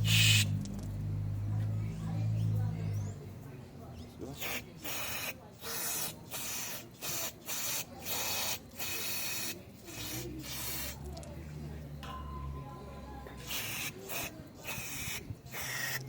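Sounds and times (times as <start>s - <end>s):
aerosol spray bursts: 4.4s - 11.1s, 13.4s - 16.0s.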